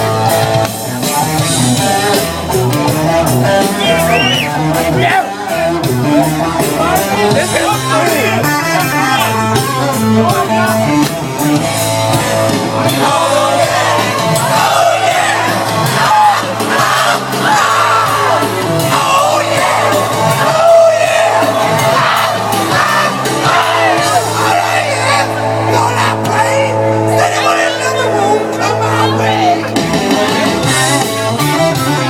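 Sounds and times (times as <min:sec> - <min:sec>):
rock band playing live: 0:00.0 - 0:32.0
singer shouting and wailing: 0:03.5 - 0:10.9, 0:12.8 - 0:31.0.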